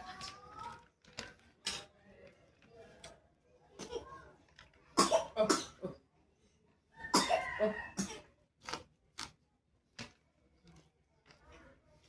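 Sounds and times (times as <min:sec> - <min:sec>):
person coughing: 0:05.0 - 0:06.0, 0:07.1 - 0:08.3.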